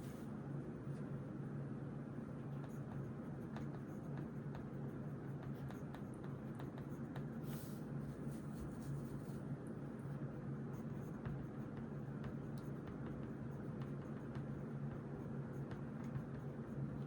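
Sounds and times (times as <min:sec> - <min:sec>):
steady low hum: 0:00.0 - 0:17.0
pen writing on paper: 0:02.5 - 0:07.4, 0:10.7 - 0:17.0.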